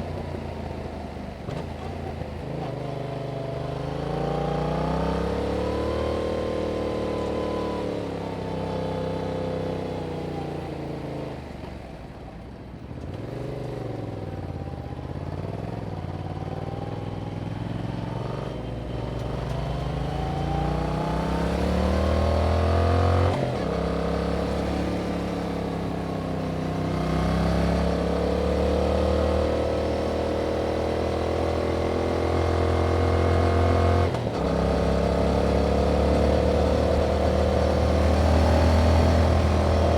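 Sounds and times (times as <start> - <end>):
motorcycle engine revving: 16.3 - 39.9.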